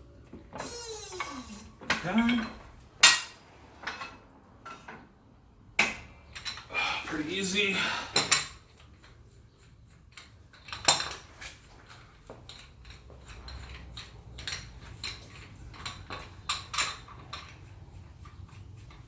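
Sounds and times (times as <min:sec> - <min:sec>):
metal tools clinking and knocking: 0:00.6 - 0:05.0, 0:08.2 - 0:19.0.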